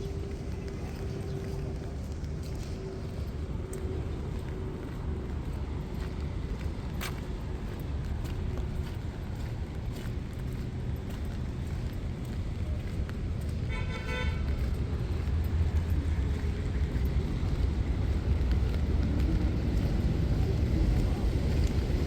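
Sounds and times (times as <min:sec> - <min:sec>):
street traffic rumble: 0:00.0 - 0:22.0
car horn toot: 0:13.7 - 0:14.4.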